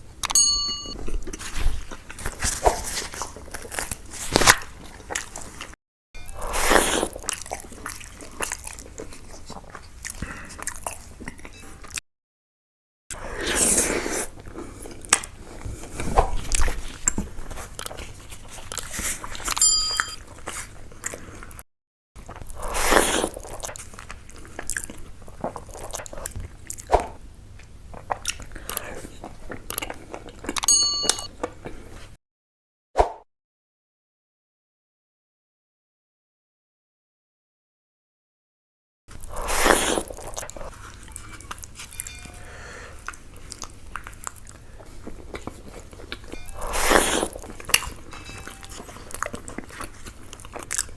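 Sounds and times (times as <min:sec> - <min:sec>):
person chewing and crunching food: 0:01.0 - 0:11.6, 0:13.3 - 0:19.6, 0:20.2 - 0:21.6, 0:22.2 - 0:30.7, 0:39.1 - 0:42.1, 0:42.7 - 0:50.9.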